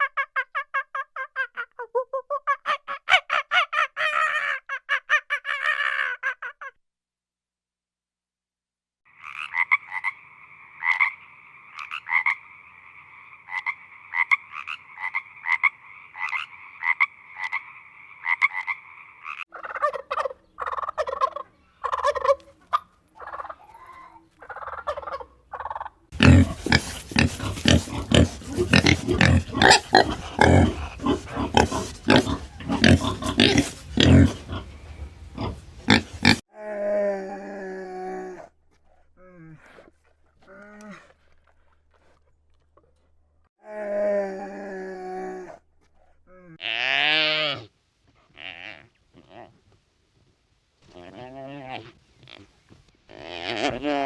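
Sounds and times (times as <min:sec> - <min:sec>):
turkey gobbling: 0:19.5 - 0:36.2
animal deep grunting calls: 0:26.2 - 0:36.4.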